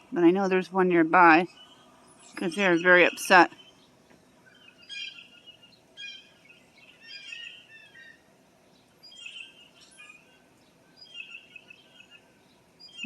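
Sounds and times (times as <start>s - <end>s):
faint outdoor background noise: 0.0s - 13.0s
blue jays calling: 0.1s - 8.3s.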